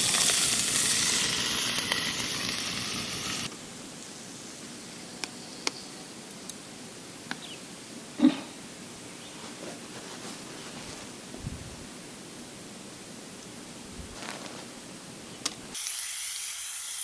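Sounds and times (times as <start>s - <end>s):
meat sizzling in a pan: 0.0s - 3.5s, 15.8s - 17.0s.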